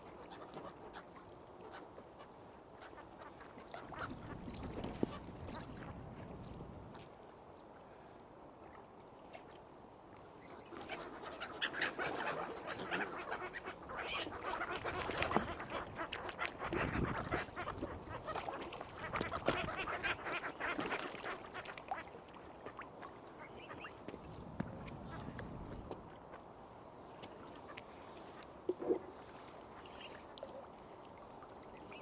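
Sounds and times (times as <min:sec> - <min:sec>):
waterfowl calling: 0:10.5 - 0:22.8.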